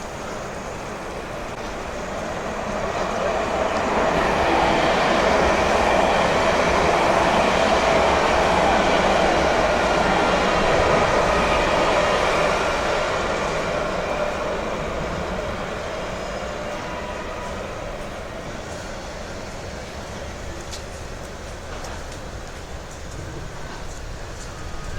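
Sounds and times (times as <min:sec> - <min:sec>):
tram passing: 0:00.0 - 0:24.9.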